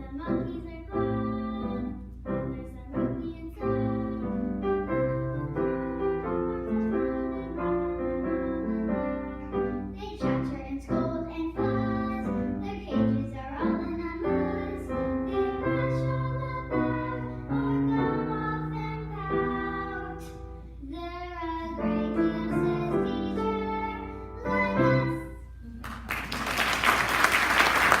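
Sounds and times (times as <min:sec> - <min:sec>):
piano accompaniment: 0:00.0 - 0:28.0
applause: 0:25.8 - 0:28.0.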